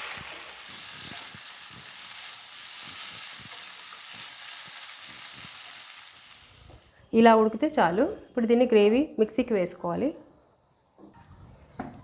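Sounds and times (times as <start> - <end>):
vegetables sizzling in oil: 0.0 - 6.9.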